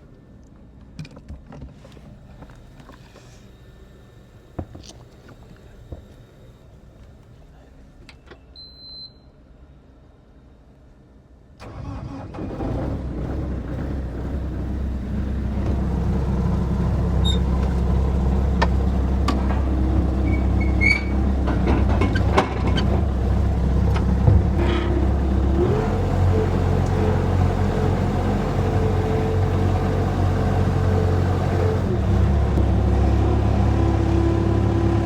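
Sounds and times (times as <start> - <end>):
loader engine starting and running: 11.6 - 35.0.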